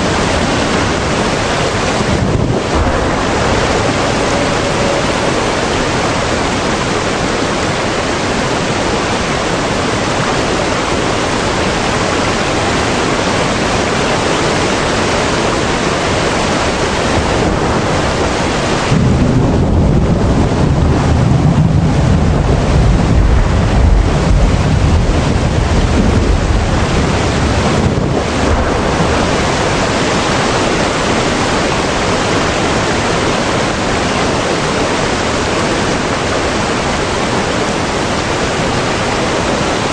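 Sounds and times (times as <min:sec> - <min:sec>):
steady rushing noise: 0:00.0 - 0:39.9
deep rumble: 0:00.2 - 0:08.0, 0:16.8 - 0:31.7.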